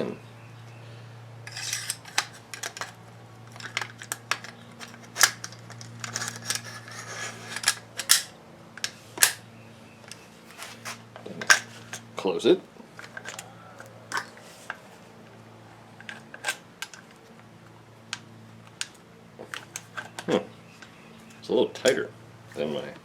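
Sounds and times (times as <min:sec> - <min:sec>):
steady low hum: 0:00.0 - 0:23.0
metal scraping: 0:01.4 - 0:08.3.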